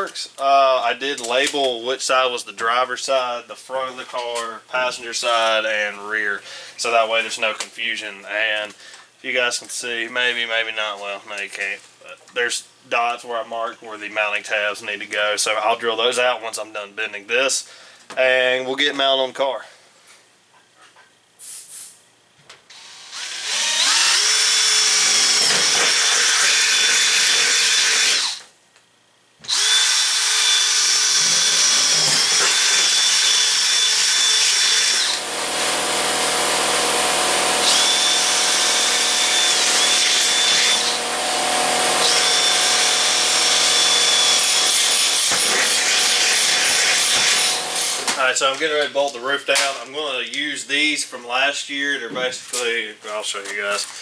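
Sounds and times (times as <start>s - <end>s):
power drill boring through metal: 22.7s - 28.5s, 29.5s - 48.2s.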